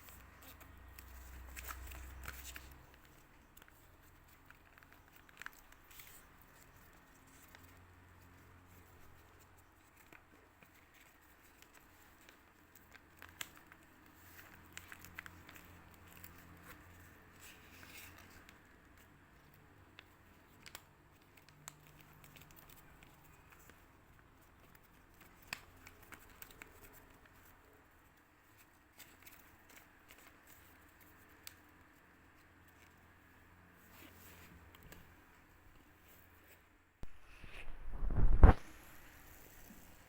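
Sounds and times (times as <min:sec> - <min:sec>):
paper crinkling and rustling: 0:00.0 - 0:40.0.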